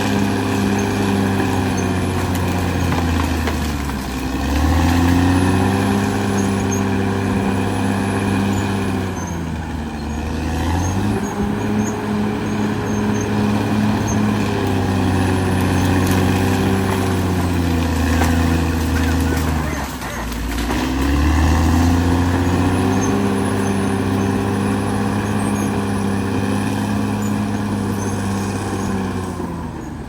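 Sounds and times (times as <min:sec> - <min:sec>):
bulldozer diesel engine revving: 0:00.0 - 0:30.0.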